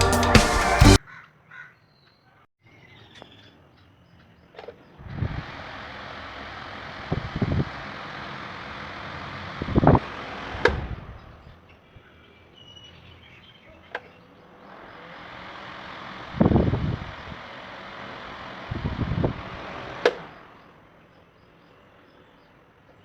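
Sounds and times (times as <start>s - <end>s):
table fan blowing: 4.9s - 11.6s, 14.4s - 21.0s
air buffeting microphone: 5.0s - 11.6s, 14.7s - 20.8s.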